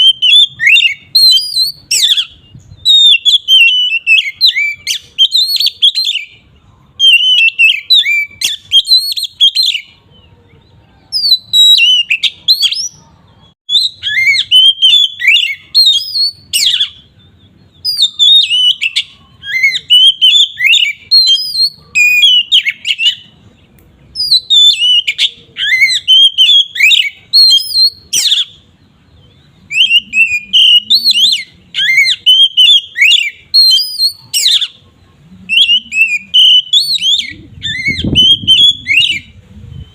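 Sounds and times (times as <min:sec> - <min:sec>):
songbird whistling and warbling: 0:00.0 - 0:39.9.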